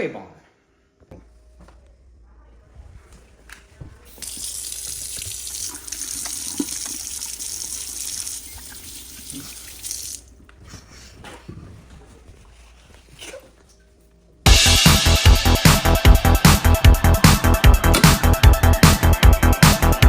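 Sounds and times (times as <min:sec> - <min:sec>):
tap running into sink: 0:04.1 - 0:10.2
electronic music with heavy beat: 0:14.5 - 0:20.0.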